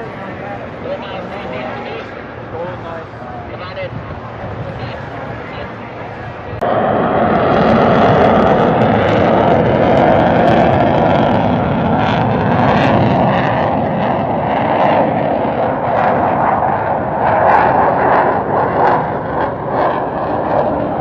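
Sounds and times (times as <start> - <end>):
airplane flying past: 0.0 - 21.0.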